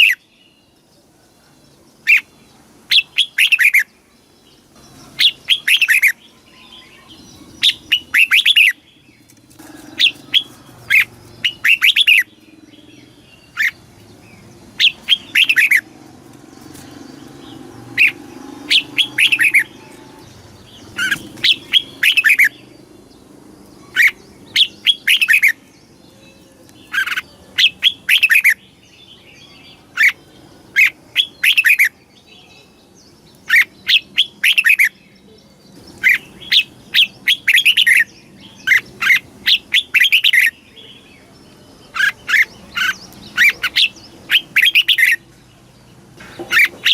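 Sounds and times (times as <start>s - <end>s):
bird whistling song: 2.9s - 3.9s, 5.2s - 13.8s, 14.8s - 15.9s, 16.7s - 22.7s, 23.8s - 28.7s, 30.8s - 32.5s, 33.4s - 35.0s, 35.9s - 41.0s, 41.9s - 45.2s, 46.4s - 46.9s.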